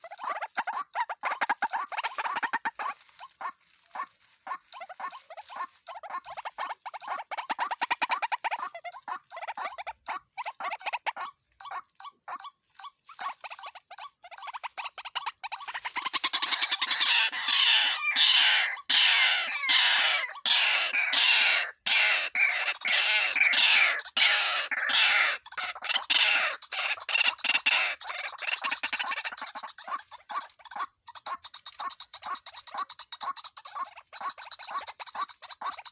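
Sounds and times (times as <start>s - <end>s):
waterhen calling: 0.0s - 35.9s.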